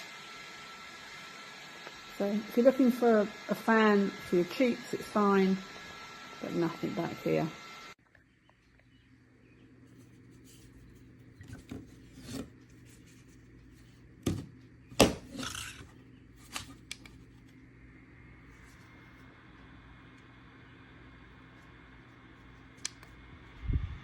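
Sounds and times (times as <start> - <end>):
faint fan hum: 0.0 - 24.0
rubbing and handling noise: 9.8 - 17.6.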